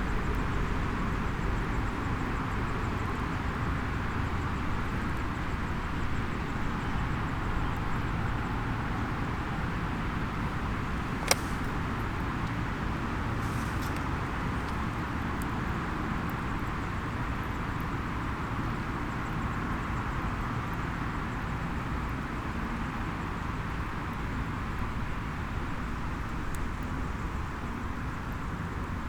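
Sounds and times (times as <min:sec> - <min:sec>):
wood fire sharp pop: 0:11.0 - 0:12.6, 0:13.2 - 0:15.0
faint fire ticks: 0:11.1 - 0:15.6.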